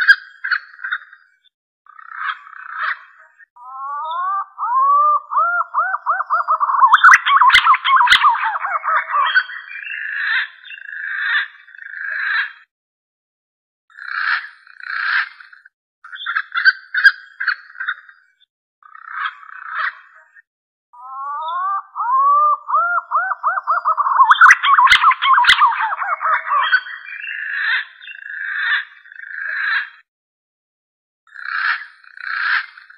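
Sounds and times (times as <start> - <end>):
pigeon whistled calls: 3.8 - 9.5, 21.1 - 27.0.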